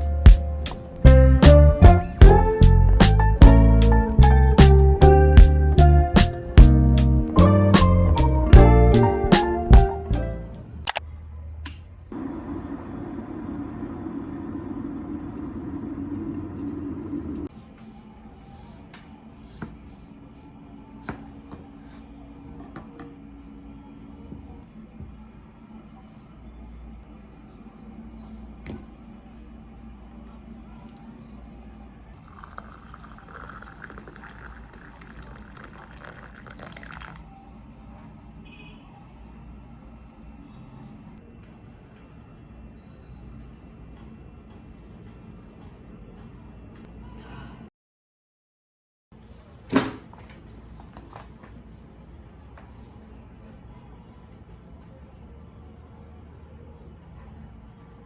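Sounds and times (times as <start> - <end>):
steady mechanical hum: 0.0 - 47.7
sharp clicks: 10.8 - 11.0
water pouring: 31.8 - 37.4.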